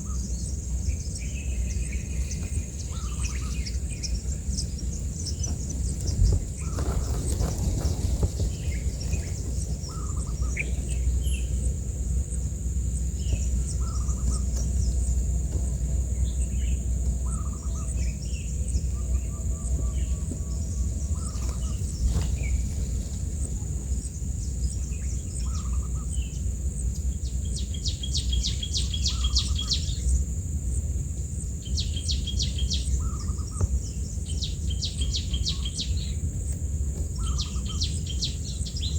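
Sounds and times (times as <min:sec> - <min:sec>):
low rumble: 0:00.0 - 0:29.3
birds chirping: 0:00.0 - 0:38.9.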